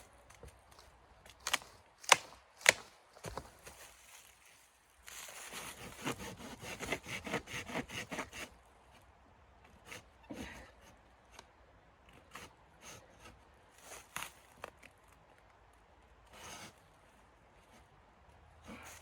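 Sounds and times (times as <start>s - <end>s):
hand saw cutting wood: 5.4s - 8.5s, 16.3s - 16.8s.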